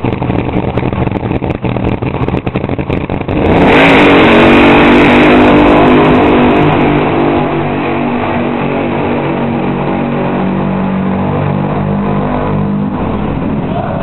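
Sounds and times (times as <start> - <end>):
dragster engine running very loud: 0.0 - 14.0.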